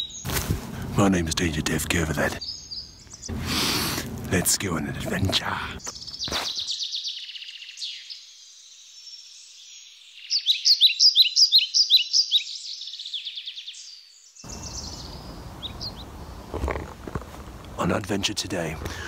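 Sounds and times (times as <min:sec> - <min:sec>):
birds chirping and trilling: 0:00.0 - 0:17.2.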